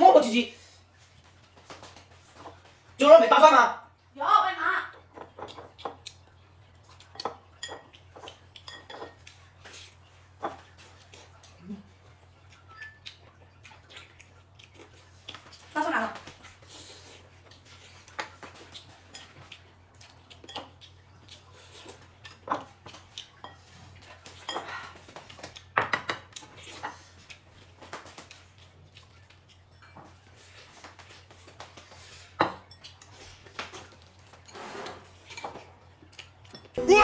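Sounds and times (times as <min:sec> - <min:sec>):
chopsticks and spoons clinking bowls: 0:05.0 - 0:11.6, 0:12.4 - 0:13.3, 0:17.1 - 0:27.0, 0:29.0 - 0:37.0.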